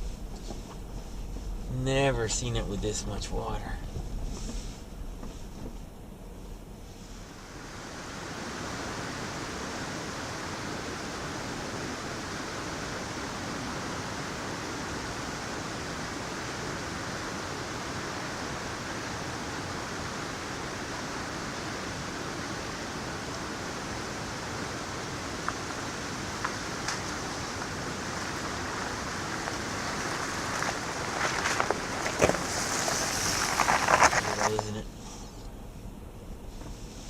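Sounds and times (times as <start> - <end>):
waterfall and creek rushing: 7.5 - 34.6.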